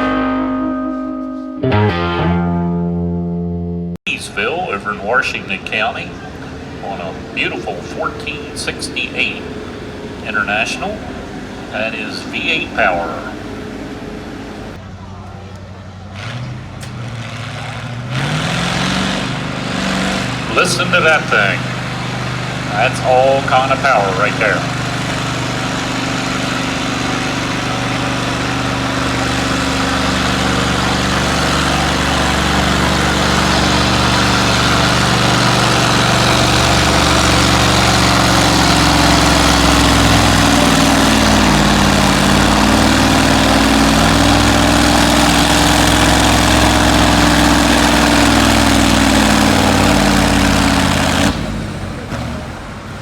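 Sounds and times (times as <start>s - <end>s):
tractor engine running under load: 4.1s - 53.0s.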